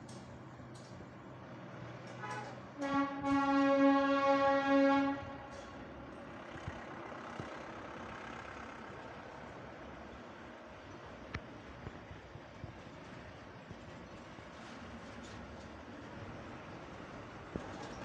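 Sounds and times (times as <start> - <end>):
locomotive horn blast: 2.1 - 5.9.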